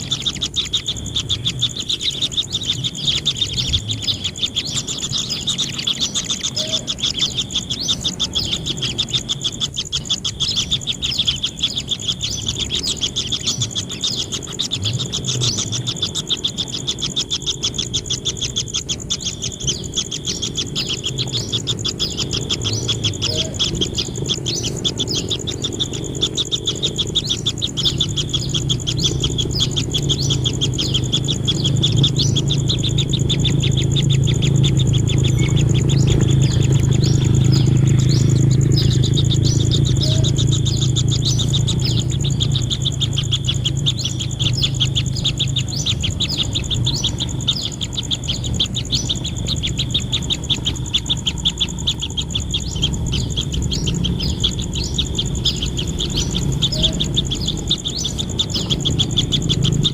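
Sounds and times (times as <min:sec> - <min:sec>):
nestlings chirping rapidly: 0:00.0 - 0:59.9
low rumble: 0:20.7 - 0:59.9.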